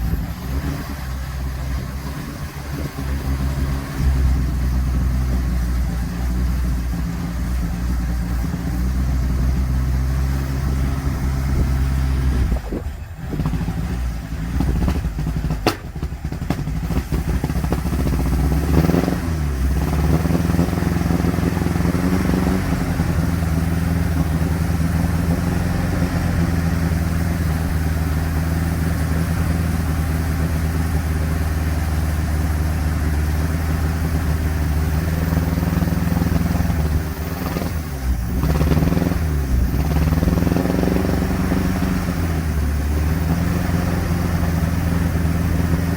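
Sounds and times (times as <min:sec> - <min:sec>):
car engine misfiring: 0:00.0 - 0:45.9
sharp click: 0:15.6 - 0:16.0.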